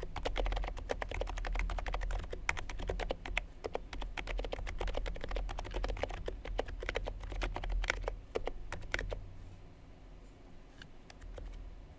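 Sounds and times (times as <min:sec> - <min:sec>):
keyboard typing: 0:00.0 - 0:09.2.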